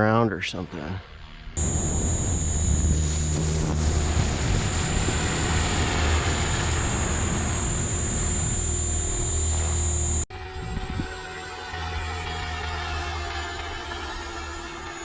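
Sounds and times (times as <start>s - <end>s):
high motor whine: 1.2s - 15.0s
wind noise on microphone: 1.6s - 8.7s, 10.3s - 12.7s
rotor blades rushing: 1.6s - 12.2s.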